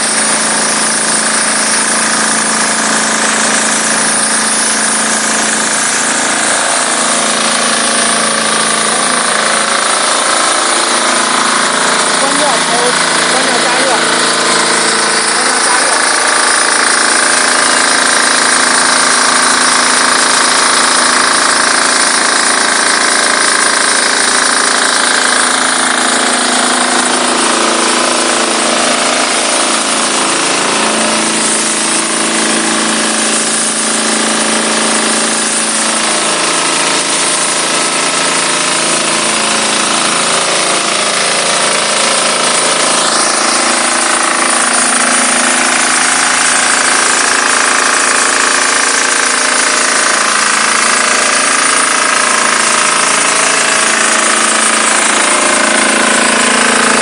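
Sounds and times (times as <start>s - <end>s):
pressure washer engine running: 0.0s - 57.0s
spray jet hissing: 3.4s - 22.8s, 23.4s - 34.1s.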